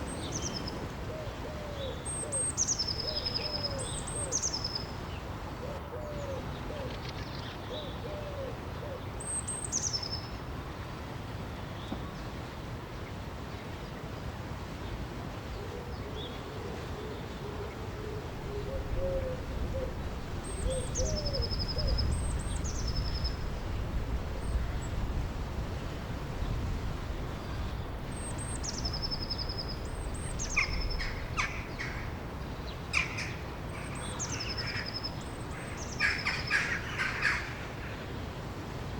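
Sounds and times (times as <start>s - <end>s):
bird hooting or cooing: 1.1s - 4.4s, 5.6s - 7.0s, 7.7s - 9.1s, 15.6s - 22.1s.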